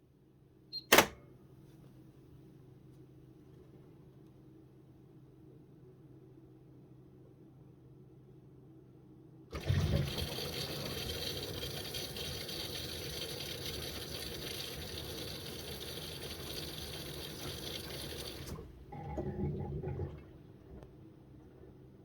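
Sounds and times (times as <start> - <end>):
water rushing into washing machine: 9.5 - 21.7.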